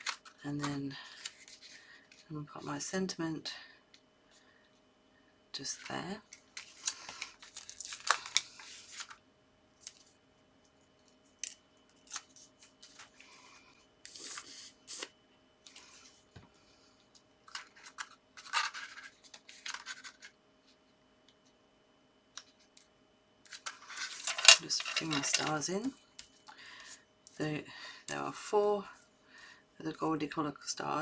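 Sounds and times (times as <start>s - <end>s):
paper rustling: 1.0s - 2.3s, 5.8s - 9.2s, 17.5s - 20.4s.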